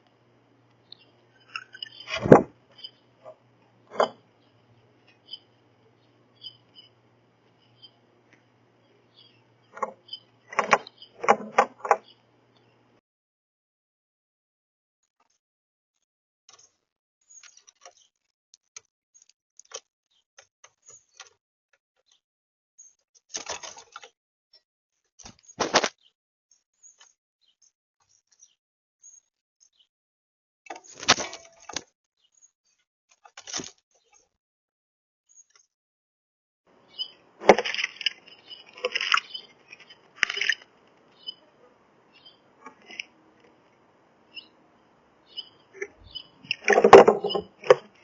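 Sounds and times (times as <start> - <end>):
small birds chirping: 0.0 - 13.0, 16.5 - 18.3, 19.2 - 21.4, 25.3 - 29.9, 36.7 - 48.0
birds pecking at a feeder: 36.7 - 48.0.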